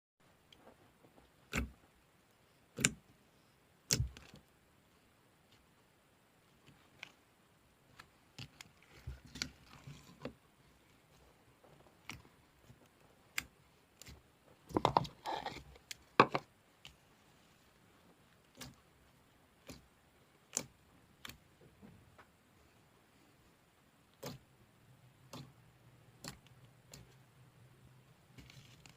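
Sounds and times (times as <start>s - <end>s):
slime squishing: 0.6s - 1.9s, 6.4s - 21.6s, 24.0s - 24.5s, 28.2s - 28.9s.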